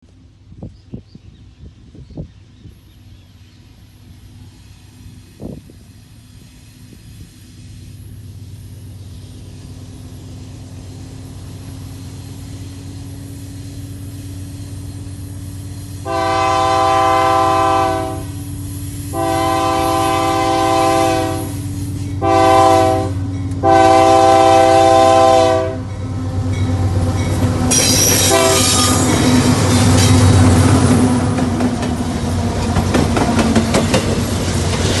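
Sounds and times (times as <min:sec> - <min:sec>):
locomotive engine rumble: 0:00.1 - 0:35.0
train wheels on rails: 0:00.1 - 0:35.0
train air horn: 0:16.0 - 0:18.5, 0:19.1 - 0:25.9, 0:27.8 - 0:29.1.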